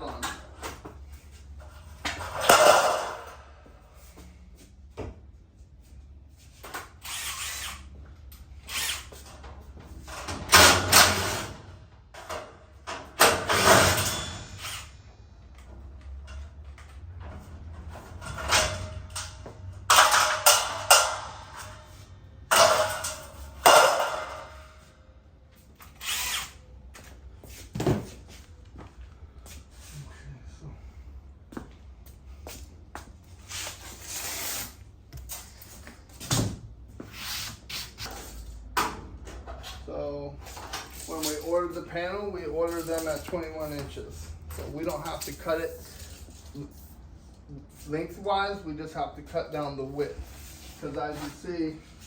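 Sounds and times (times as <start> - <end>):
scraping and clattering on metal door: 1.6 - 3.5, 9.1 - 15.0, 16.1 - 24.9.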